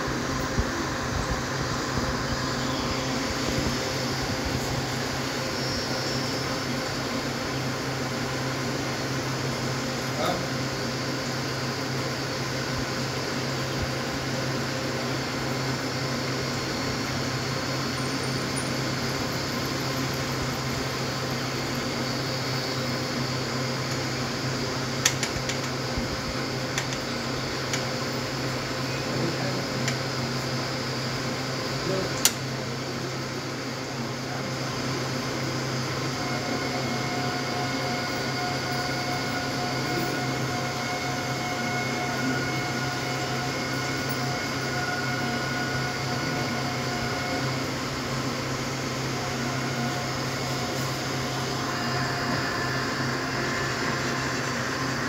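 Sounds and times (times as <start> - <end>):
train rumbling over rails: 0.0 - 10.1.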